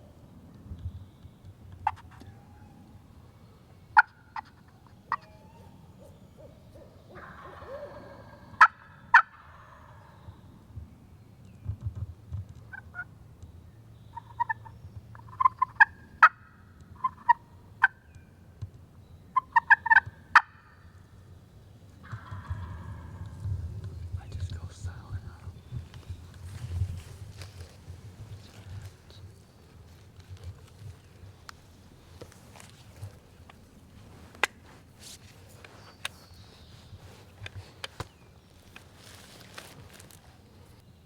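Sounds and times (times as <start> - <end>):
turkey gobbling: 4.0 - 10.4, 14.2 - 18.0, 19.4 - 20.8, 22.0 - 23.7.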